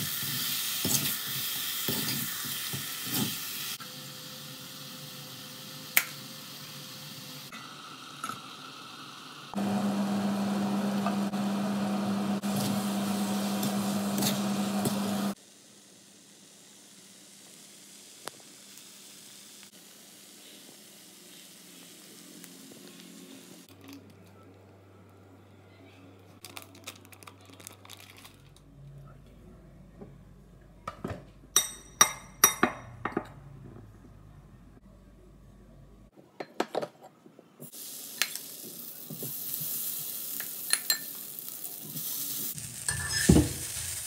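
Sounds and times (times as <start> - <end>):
food sizzling in a pan: 0.0 - 23.7, 37.6 - 44.0.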